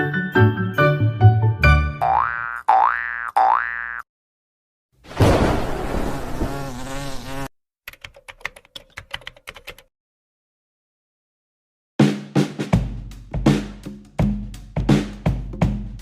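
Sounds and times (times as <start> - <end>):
buzzing: 5.6 - 7.5.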